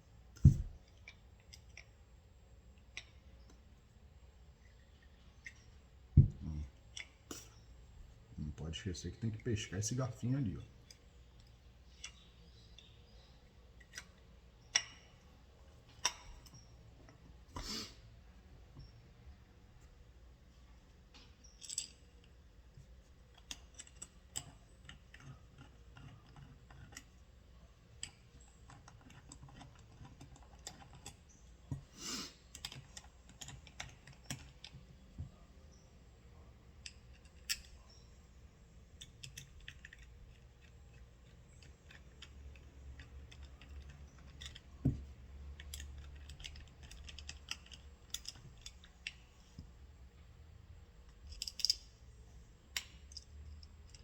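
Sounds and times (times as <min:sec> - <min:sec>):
small metal parts clicking: 0:21.4 - 0:22.4, 0:23.3 - 0:27.2, 0:28.0 - 0:31.3, 0:32.5 - 0:34.8, 0:36.7 - 0:38.1, 0:38.8 - 0:49.6, 0:51.0 - 0:52.1, 0:52.7 - 0:54.0.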